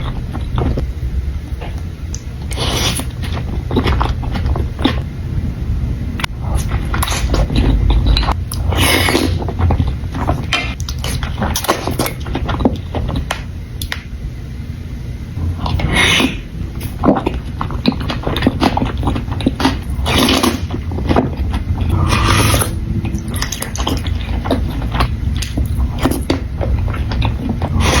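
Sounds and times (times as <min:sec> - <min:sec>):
noisy slurps: 0:02.4 - 0:05.0, 0:06.2 - 0:13.3, 0:15.4 - 0:28.0
wet chewing clicks: 0:06.2 - 0:14.0, 0:16.8 - 0:28.0.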